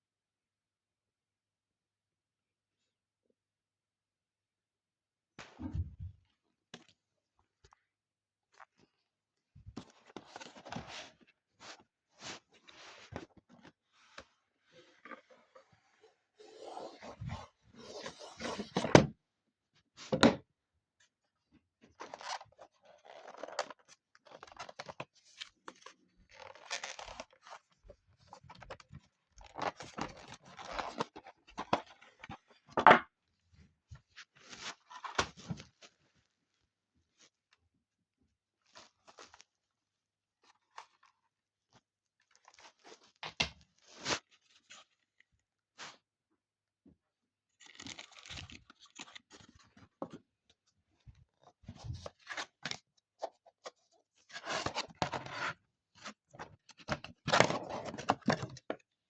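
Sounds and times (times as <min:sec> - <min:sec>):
packaging tearing and crinkling: 0:47.6 - 0:49.3.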